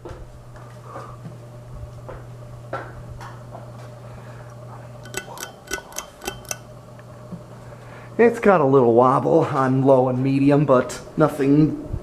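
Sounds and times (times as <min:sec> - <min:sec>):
ceiling fan motor humming: 0:00.0 - 0:12.0
metallic pull chain clinks: 0:05.0 - 0:06.7.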